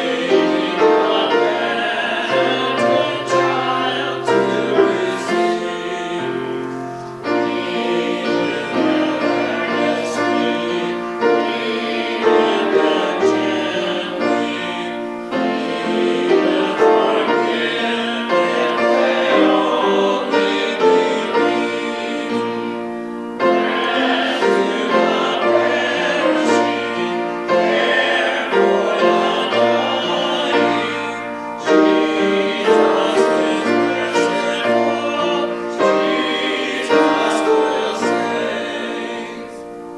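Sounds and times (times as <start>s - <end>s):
person singing: 0.0s - 6.7s, 7.3s - 22.8s, 23.4s - 39.9s
piano chords: 0.0s - 39.9s.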